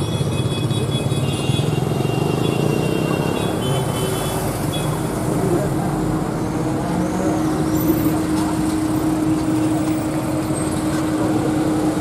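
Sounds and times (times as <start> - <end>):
cars passing slowly: 1.1 - 12.0.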